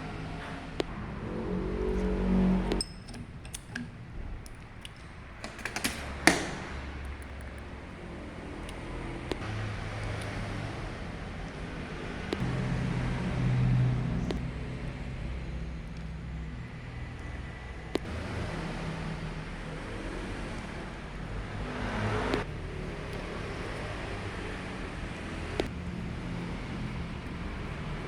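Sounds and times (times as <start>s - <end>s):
low engine-like rumble: 0.0s - 28.0s
metal tools clicking: 2.8s - 7.9s.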